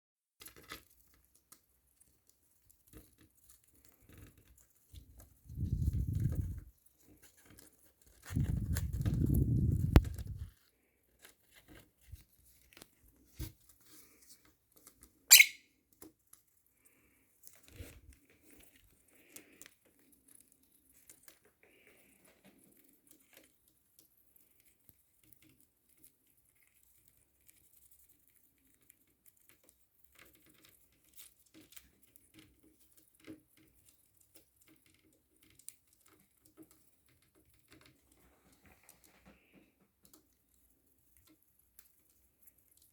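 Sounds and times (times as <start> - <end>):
bird beak shredding material: 7.4 - 15.6.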